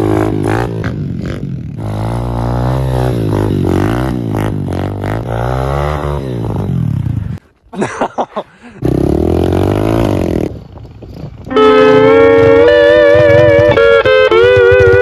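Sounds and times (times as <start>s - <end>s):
small motorbike engine revving: 0.0s - 7.4s, 8.8s - 15.0s
slide guitar music: 11.5s - 15.0s.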